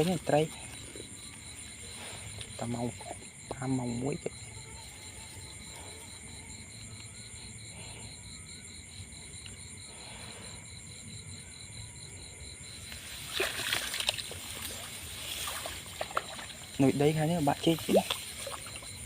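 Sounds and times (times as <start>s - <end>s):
water splashing and sloshing: 12.8s - 19.0s.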